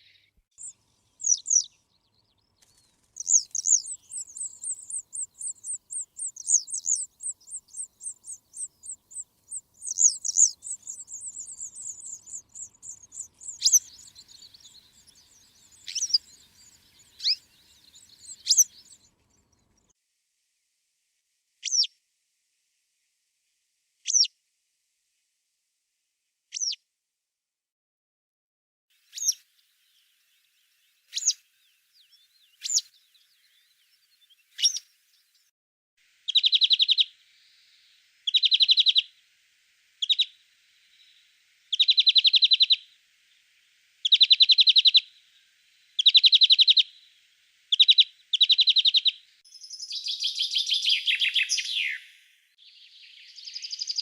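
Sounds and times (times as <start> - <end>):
tangled bird song: 0.0 - 20.0, 21.6 - 22.0, 24.0 - 24.3, 26.5 - 26.8, 29.0 - 35.5, 36.1 - 54.0
sharp falling bird calls: 2.4 - 19.2, 34.4 - 34.9, 47.7 - 54.0
rapid bird trill: 2.6 - 19.1, 36.3 - 37.2, 38.2 - 39.1, 40.0 - 43.0, 44.0 - 47.1, 47.7 - 52.2.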